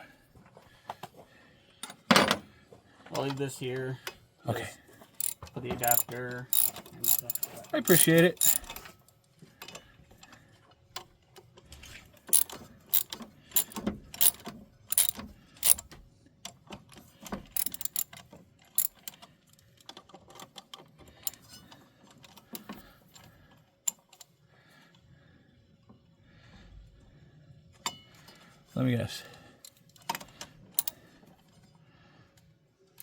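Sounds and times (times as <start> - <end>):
metal hand tools clinking: 5.2 - 8.8, 12.4 - 15.8, 17.6 - 18.0
socket ratchet clicking: 5.2 - 8.8, 12.3 - 15.8, 17.5 - 18.2, 18.8 - 19.2, 30.8 - 31.0.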